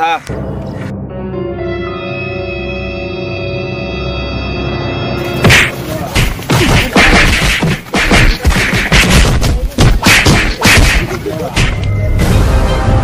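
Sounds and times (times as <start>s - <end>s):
tense dark music: 0.2s - 6.0s, 11.5s - 13.0s
punch and kick thwacks: 5.4s - 11.8s.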